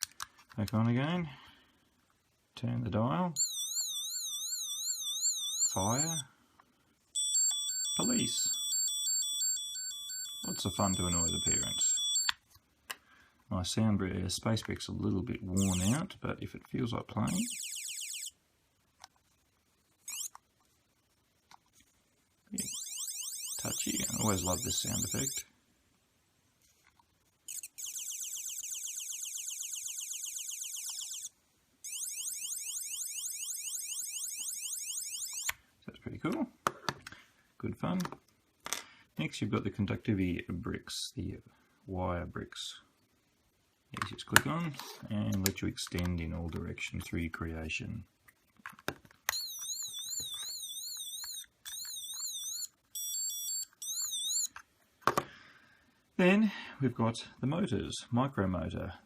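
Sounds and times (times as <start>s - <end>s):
electronic rising chirps: 7.2s - 12.3s, 17.3s - 18.3s, 27.5s - 31.3s
electronic siren warbling: 7.2s - 12.3s, 15.6s - 16.0s, 17.3s - 18.3s, 22.6s - 25.4s, 27.5s - 35.5s, 49.3s - 54.5s
stepped electronic beeping: 15.6s - 16.0s.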